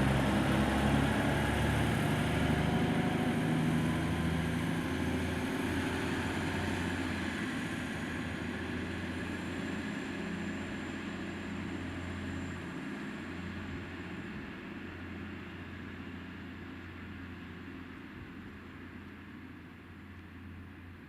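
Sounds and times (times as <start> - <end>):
diesel train engine running: 0.0 - 12.6.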